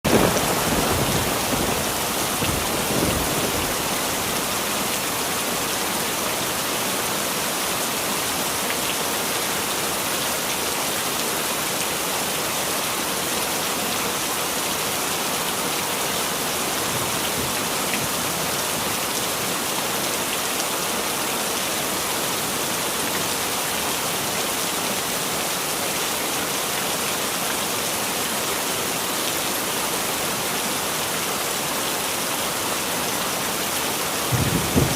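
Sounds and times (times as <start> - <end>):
heavy rain hissing: 0.0 - 8.3, 33.5 - 34.9.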